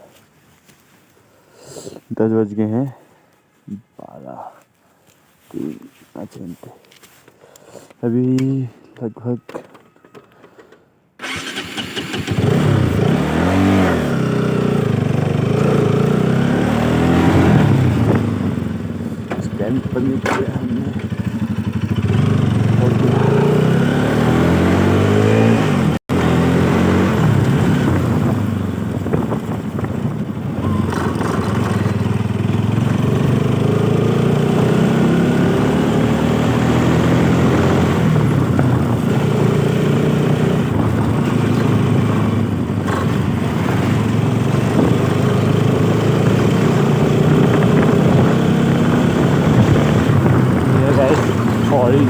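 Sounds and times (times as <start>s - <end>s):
motorcycle engine running: 11.2s - 52.0s.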